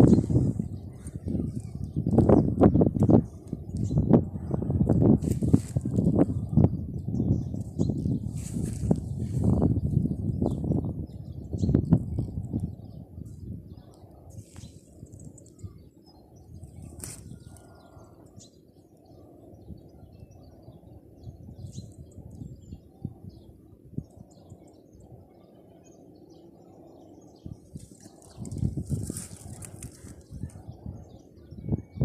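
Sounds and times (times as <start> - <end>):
small birds chirping: 0.0 - 32.0
steady low rumble: 0.0 - 32.0.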